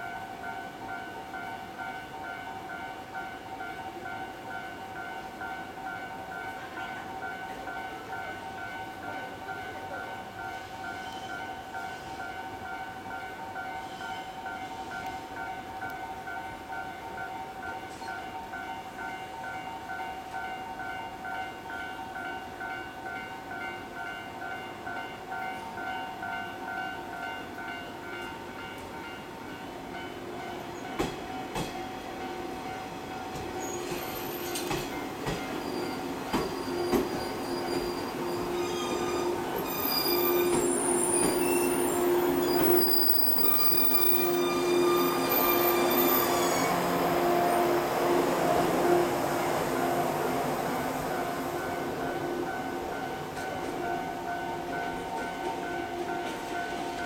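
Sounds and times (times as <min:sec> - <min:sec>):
train wheel squeal: 0:10.4 - 0:15.1, 0:33.3 - 0:47.0.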